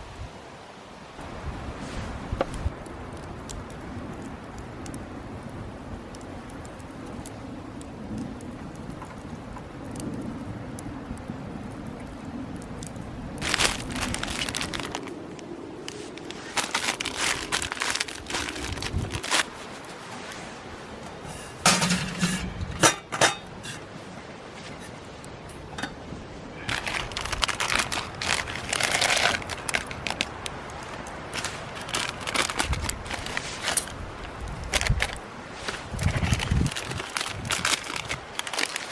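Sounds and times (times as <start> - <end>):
crinkling and crunching handling noise: 13.4 - 38.9.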